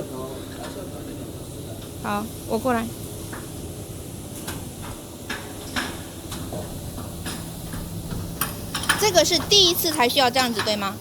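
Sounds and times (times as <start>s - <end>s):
clicks and knocks of tools: 8.4s - 9.0s.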